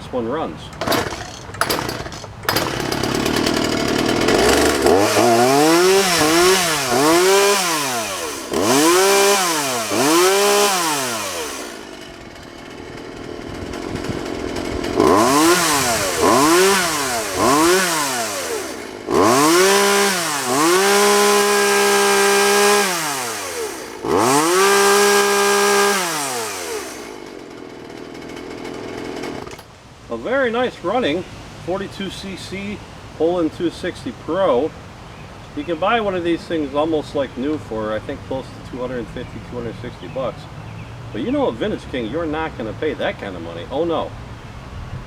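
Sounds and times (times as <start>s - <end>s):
chainsaw revving: 0.6s - 29.7s, 41.1s - 44.0s.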